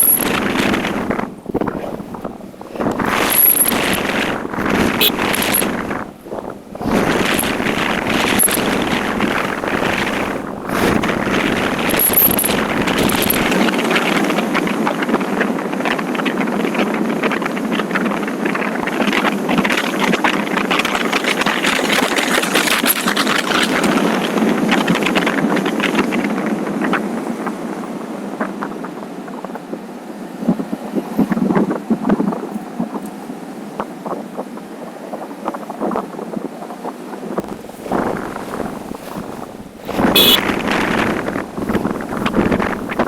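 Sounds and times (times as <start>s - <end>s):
motorcycle engine and road noise: 0.0s - 27.7s, 37.2s - 43.0s
wind rushing over microphone: 0.0s - 43.0s.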